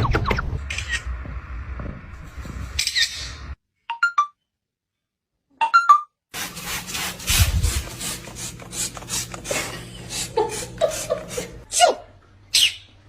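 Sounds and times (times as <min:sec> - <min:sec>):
rasping scratching strokes: 0:06.3 - 0:11.6
parrot chirping: 0:12.5 - 0:12.9.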